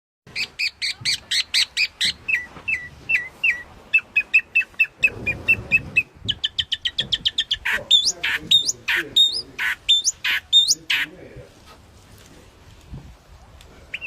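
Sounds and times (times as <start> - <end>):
songbird singing: 0.3 - 11.2.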